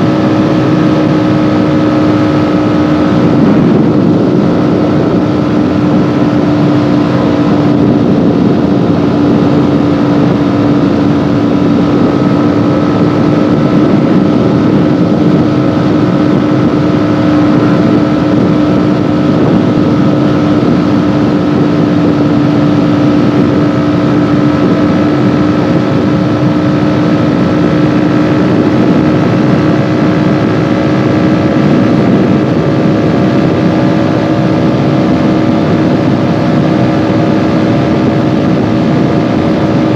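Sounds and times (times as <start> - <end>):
motorcycle engine running: 0.0 - 39.9
steady rushing noise: 0.0 - 39.9.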